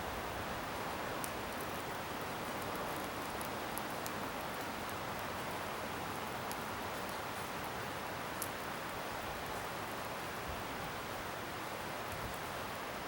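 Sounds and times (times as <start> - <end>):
burning wood crackles and pops: 0.6 - 9.5.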